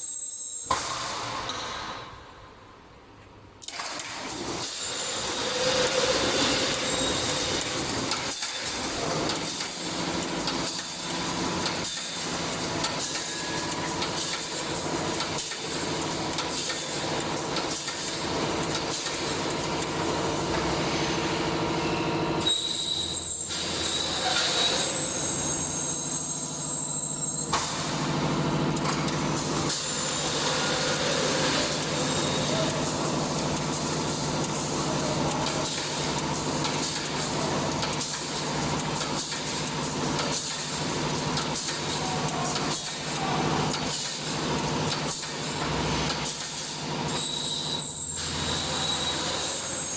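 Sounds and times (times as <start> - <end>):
machine mechanical hum: 0.1 - 49.9
welding machine knocks and clanks: 0.6 - 2.2, 3.6 - 5.4, 6.1 - 20.8, 27.4 - 48.4.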